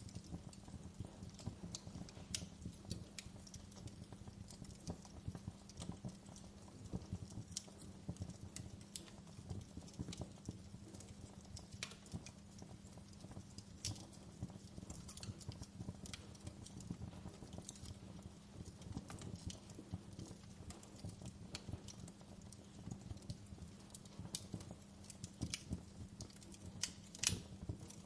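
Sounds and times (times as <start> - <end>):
fire popping and cracking: 0.0 - 28.0
flames rumbling: 0.0 - 28.0.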